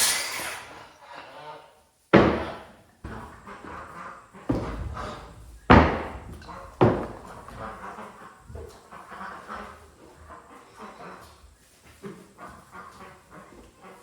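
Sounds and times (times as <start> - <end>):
loud knocks on wood: 2.1 - 3.2, 5.7 - 7.3.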